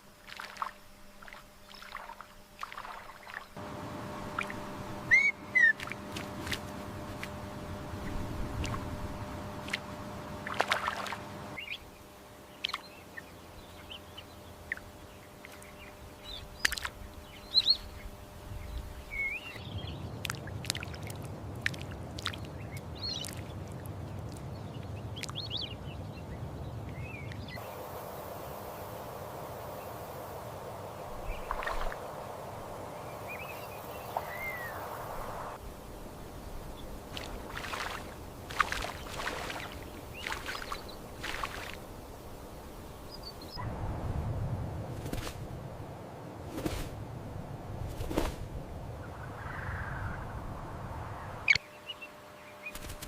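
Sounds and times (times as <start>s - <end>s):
moving water: 0.0s - 51.6s
high bird chirps: 4.3s - 5.9s, 33.2s - 35.0s.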